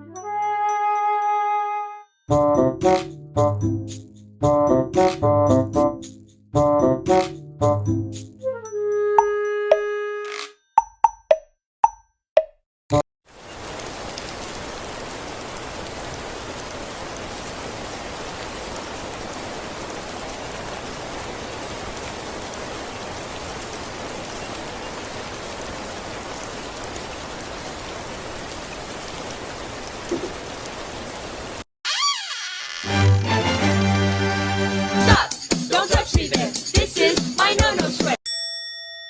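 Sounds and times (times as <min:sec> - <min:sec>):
heavy rain pouring: 0:13.3 - 0:31.7, 0:32.7 - 0:35.2.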